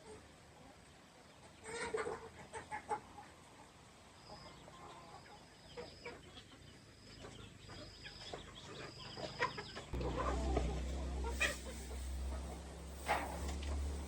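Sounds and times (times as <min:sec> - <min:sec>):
chickens clucking faintly: 0:00.0 - 0:14.0.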